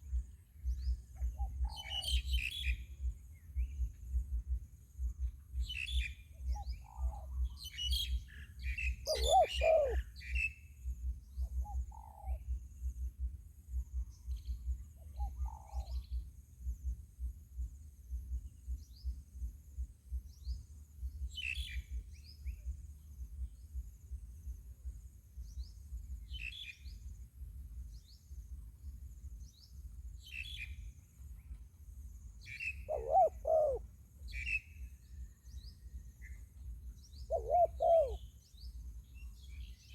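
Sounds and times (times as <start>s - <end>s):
wind rumble on microphone: 0.0s - 9.3s
small birds chirping: 5.6s - 10.5s, 32.4s - 34.9s
dove cooing: 9.0s - 10.1s, 32.8s - 33.8s, 37.3s - 38.2s.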